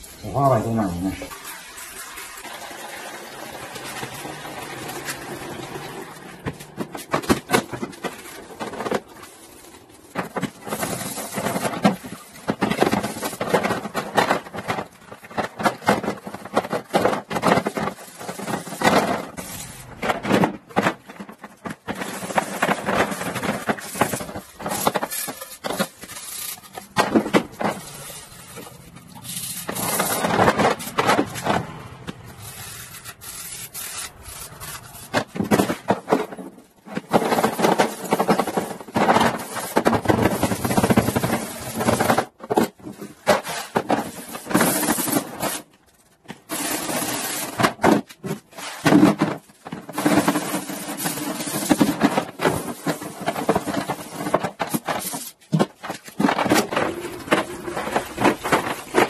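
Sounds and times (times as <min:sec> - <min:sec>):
scrubbing and scraping: 0:03.8 - 0:59.0.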